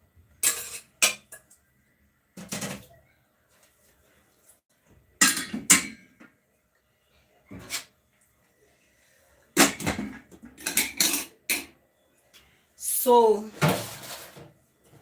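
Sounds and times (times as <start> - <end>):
cookware clattering: 0.4 - 1.5, 5.2 - 6.3, 9.6 - 11.8.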